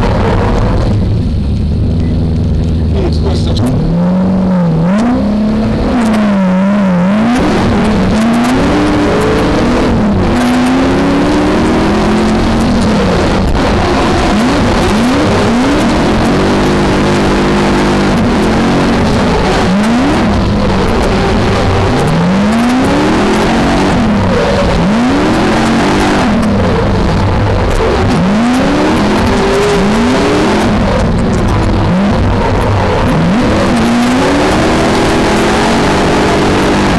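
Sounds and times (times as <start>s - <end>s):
car engine revving hard: 0.0s - 36.9s.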